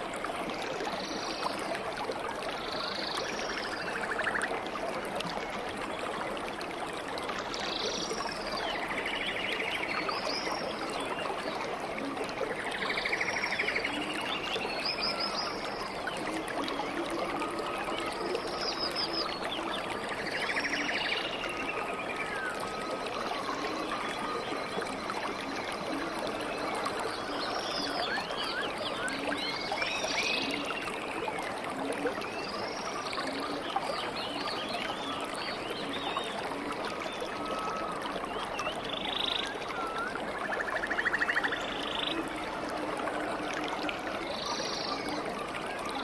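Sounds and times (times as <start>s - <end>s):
water trickling: 0.0s - 46.0s.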